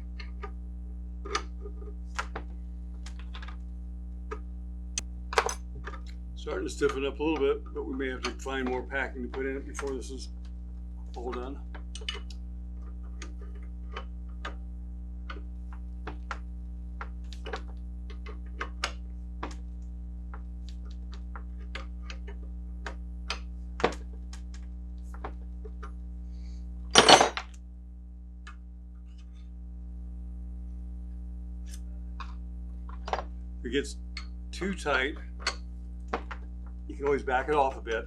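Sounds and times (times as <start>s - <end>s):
metal clatter: 27.0s - 27.4s.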